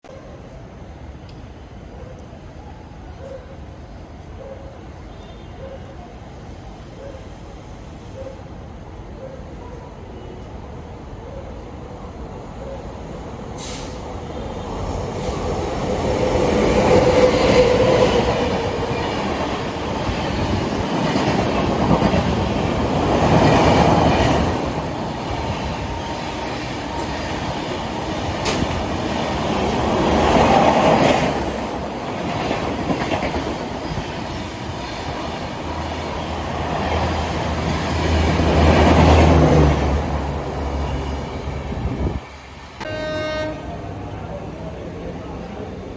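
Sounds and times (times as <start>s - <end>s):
train wheels rattling on track: 11.9s - 45.8s.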